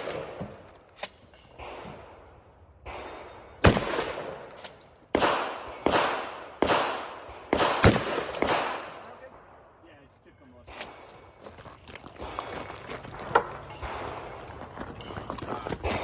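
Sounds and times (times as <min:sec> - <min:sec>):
loud gunshots echoing: 0:01.6 - 0:04.5, 0:05.1 - 0:09.8, 0:13.8 - 0:14.6.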